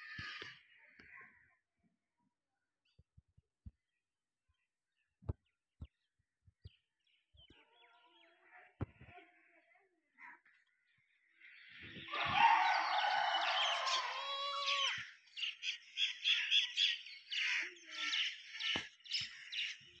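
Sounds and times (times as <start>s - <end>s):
birds calling: 10.2s - 20.0s.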